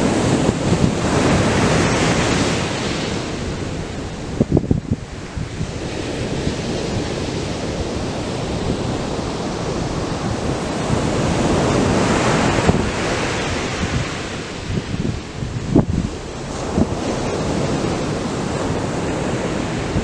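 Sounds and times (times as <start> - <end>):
surf breaking on beach: 0.0 - 20.0
wind buffeting microphone: 0.0 - 20.0.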